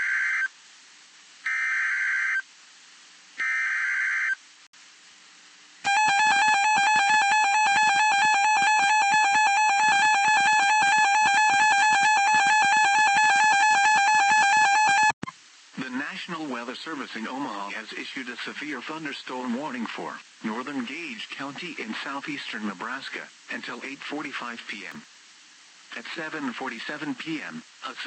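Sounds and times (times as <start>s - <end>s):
continuous warning alarm tone: 5.8s - 15.2s
raspy digital data bursts: 5.8s - 15.2s.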